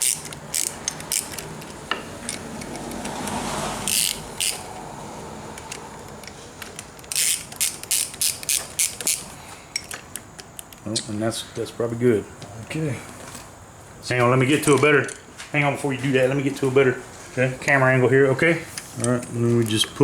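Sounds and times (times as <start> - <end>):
hand ratchet clicking: 0.0 - 4.9, 5.6 - 10.8.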